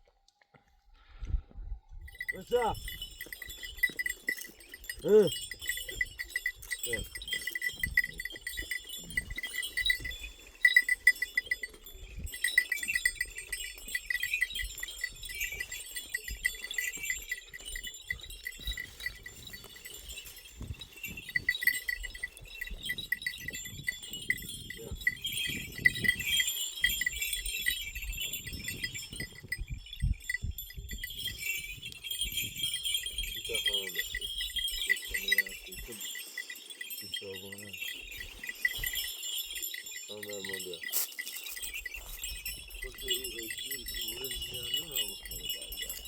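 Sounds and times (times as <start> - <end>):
animal bells clinking: 1.7 - 46.0.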